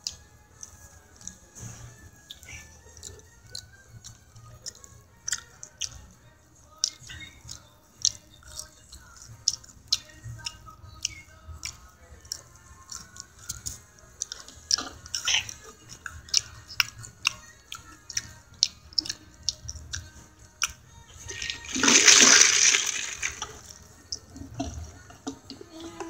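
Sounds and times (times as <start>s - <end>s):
wet chewing with mouth clicks: 0.0s - 26.0s
slurping through a straw: 21.2s - 23.7s.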